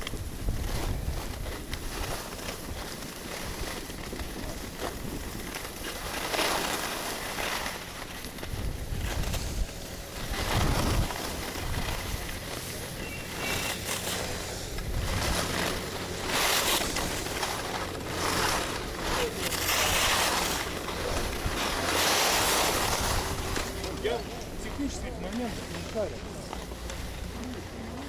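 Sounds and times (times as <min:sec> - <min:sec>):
skis scraping across snow: 0:00.0 - 0:28.0
wind rushing over microphone: 0:08.3 - 0:25.0.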